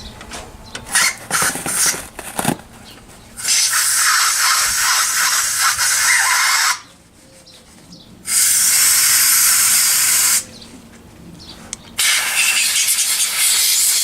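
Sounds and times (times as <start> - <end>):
pressurised spray hissing: 3.4 - 6.8, 8.3 - 10.5, 12.0 - 14.0.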